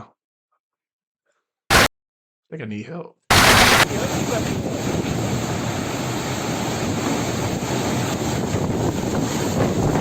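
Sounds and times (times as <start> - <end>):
storm wind blowing hard: 3.3 - 10.0
wind buffeting microphone: 3.8 - 10.0.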